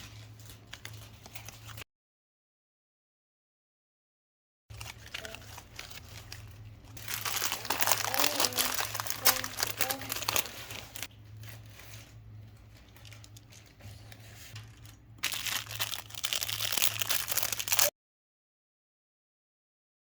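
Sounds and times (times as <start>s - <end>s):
plastic packaging crinkling: 0.0s - 1.8s, 4.7s - 17.9s.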